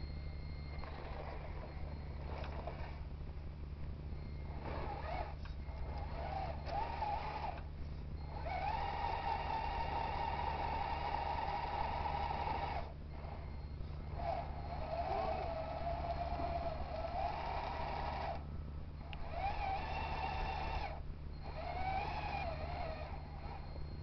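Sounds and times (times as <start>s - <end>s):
steady low hum: 0.0s - 24.0s
toy truck electric motor whining: 0.7s - 3.0s, 4.5s - 18.4s, 19.0s - 24.0s.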